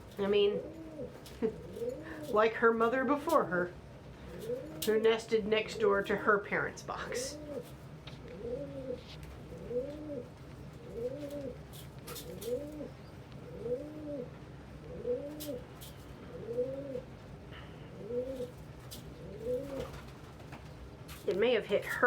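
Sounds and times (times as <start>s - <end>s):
low steady hum: 0.0s - 22.0s
pigeon cooing: 0.1s - 2.8s, 4.2s - 6.2s, 6.9s - 20.2s.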